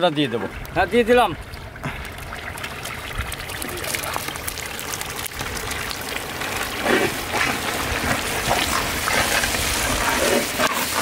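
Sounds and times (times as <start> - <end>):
masala sizzling in a wok: 6.2 - 11.0.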